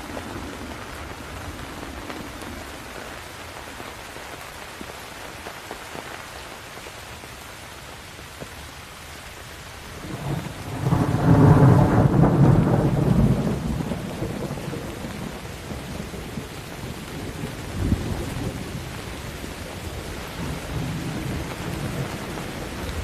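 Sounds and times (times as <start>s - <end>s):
steady rain: 0.0s - 23.0s
rolling thunder: 10.0s - 23.0s.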